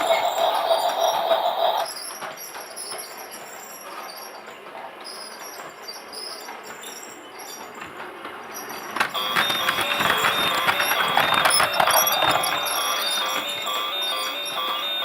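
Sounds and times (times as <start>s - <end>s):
toy train running: 0.0s - 4.4s, 7.5s - 15.0s
toy tinny tune: 9.2s - 15.0s.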